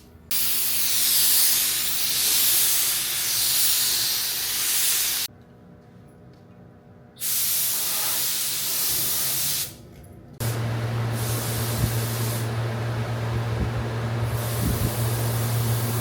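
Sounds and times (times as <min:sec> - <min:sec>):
paint spray gun hissing: 0:00.3 - 0:05.3, 0:10.4 - 0:12.7, 0:14.2 - 0:16.0
steady low hum: 0:09.9 - 0:16.0.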